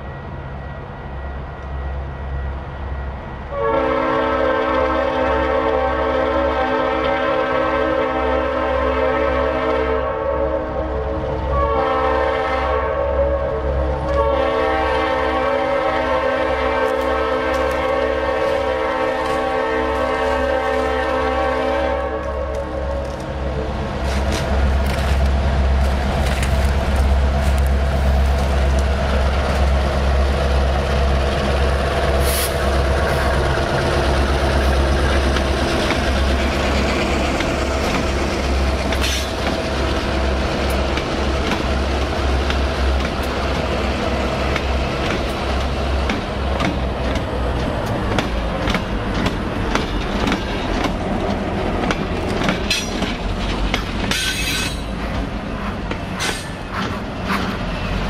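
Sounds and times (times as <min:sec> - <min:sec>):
diesel locomotive drone: 0:00.0 - 0:58.0
steel wheels clicking on rails: 0:44.4 - 0:58.0.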